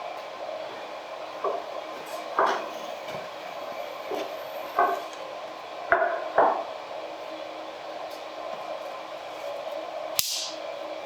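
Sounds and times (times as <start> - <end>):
steady whirring hum: 0.0 - 11.0
sharp click: 10.2 - 10.6.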